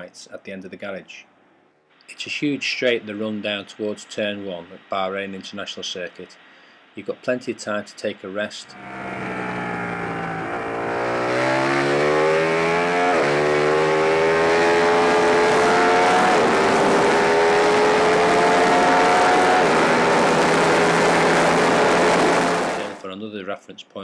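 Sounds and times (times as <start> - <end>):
motorcycle engine at full throttle: 8.7 - 23.0.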